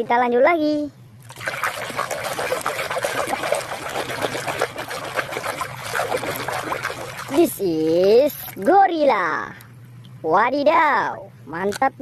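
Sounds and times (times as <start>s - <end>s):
water splashing and trickling: 1.2s - 8.7s.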